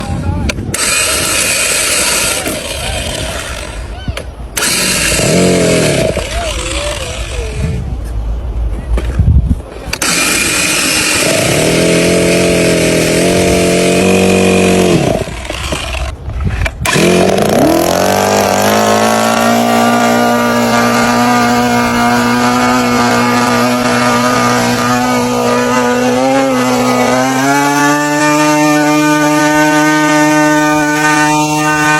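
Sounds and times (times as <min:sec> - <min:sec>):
model aircraft engine running: 0:16.9 - 0:31.9.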